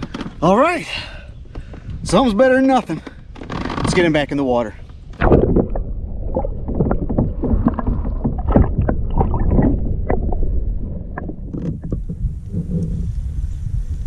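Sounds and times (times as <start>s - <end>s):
water splashes: 5.2s - 12.6s.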